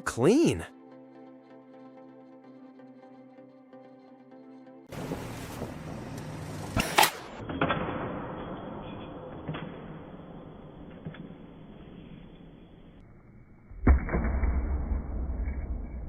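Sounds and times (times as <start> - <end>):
work-site background noise: 4.9 - 9.8.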